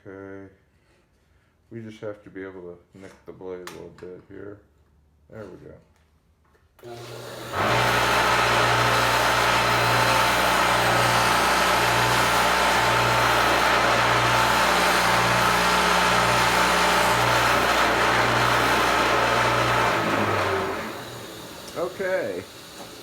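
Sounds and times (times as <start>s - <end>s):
sharpening machine motor hum: 6.8s - 23.0s.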